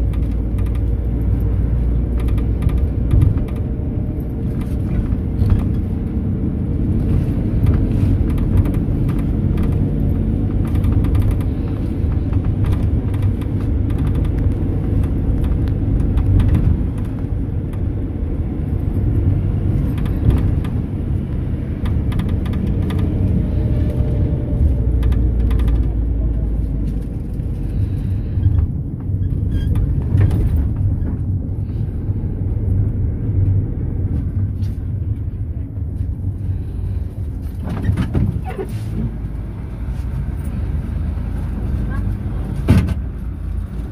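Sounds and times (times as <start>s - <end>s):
small rattles and knocks: 0.0s - 31.8s
engine and road rumble: 0.0s - 43.9s.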